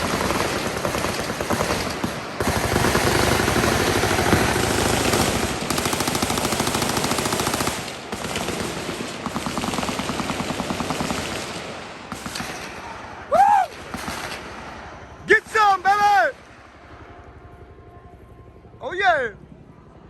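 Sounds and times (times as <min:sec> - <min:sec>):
machine guns firing: 0:00.0 - 0:16.6
rising and falling whoop: 0:13.2 - 0:13.8.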